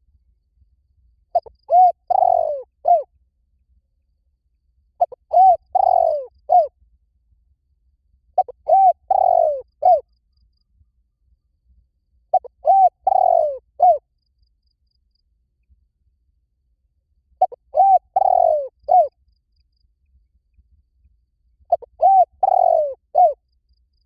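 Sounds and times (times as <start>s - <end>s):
dove cooing: 1.4s - 3.1s, 5.0s - 6.7s, 8.4s - 10.1s, 12.3s - 14.0s, 17.4s - 19.1s, 21.7s - 23.4s.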